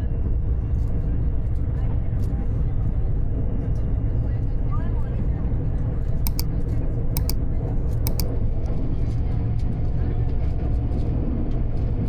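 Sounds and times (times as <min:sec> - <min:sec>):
sharp clicks: 0:06.3 - 0:06.5, 0:08.1 - 0:08.3.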